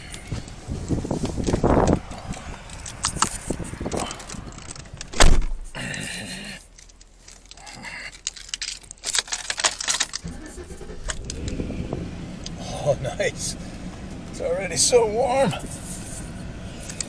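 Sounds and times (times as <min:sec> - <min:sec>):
loud thump: 0:05.1 - 0:05.8
keys jangling: 0:06.8 - 0:10.2.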